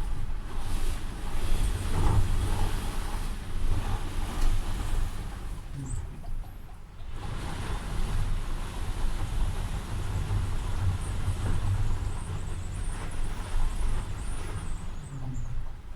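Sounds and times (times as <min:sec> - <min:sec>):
wind gusting against house: 0:07.0 - 0:15.9.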